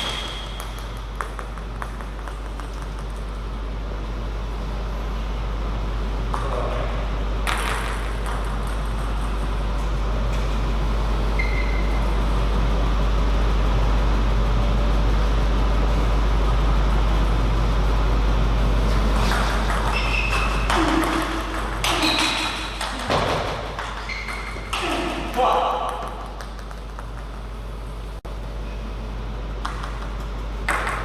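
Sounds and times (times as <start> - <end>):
table tennis ball clicks: 0.0 - 3.4, 25.8 - 27.4
low hum of sports hall: 0.0 - 31.0
short high squeaks: 11.4 - 12.0, 24.0 - 24.8.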